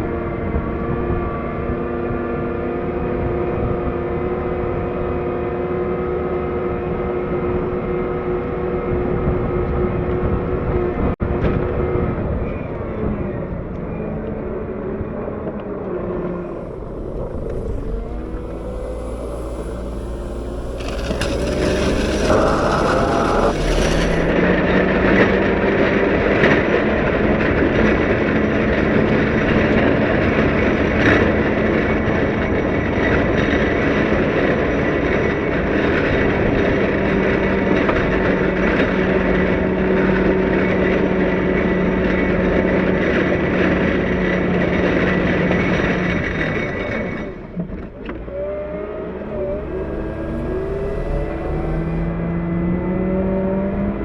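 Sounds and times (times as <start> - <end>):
wheel loader diesel engine: 16.2 - 24.4, 47.8 - 52.9
snow pusher scraping ground: 16.5 - 24.4, 49.3 - 52.1.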